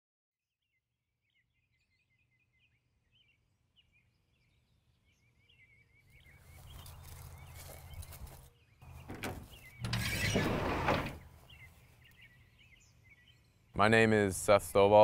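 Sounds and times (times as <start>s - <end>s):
birds chirping and calling: 1.8s - 14.1s.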